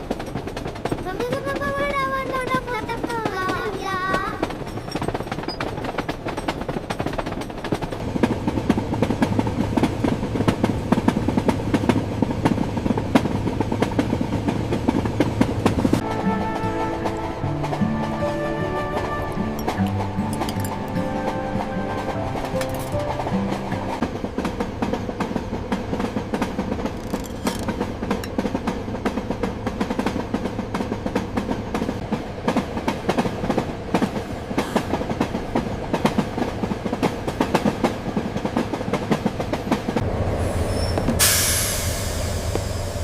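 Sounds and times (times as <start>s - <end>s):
steady train rumble: 0.0s - 43.0s
train wheels clattering on track: 0.0s - 43.0s
loud hiss: 40.4s - 43.0s.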